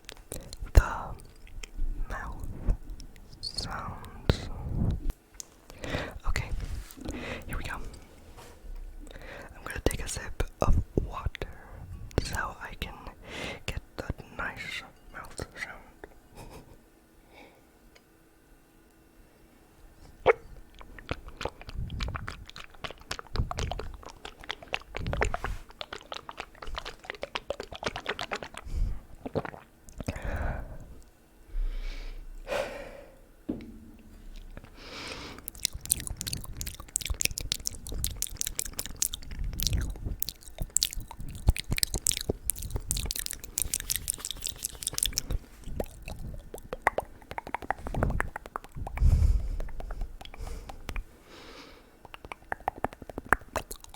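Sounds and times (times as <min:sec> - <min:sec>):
wet mouth clicks and smacks: 0:00.0 - 0:08.0, 0:09.0 - 0:13.1, 0:20.2 - 0:31.1, 0:34.3 - 0:51.1, 0:52.0 - 0:53.9.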